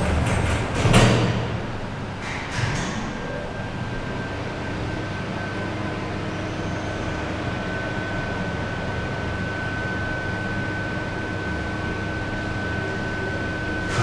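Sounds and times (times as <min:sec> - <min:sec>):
lift car rumbling: 0:00.0 - 0:02.8.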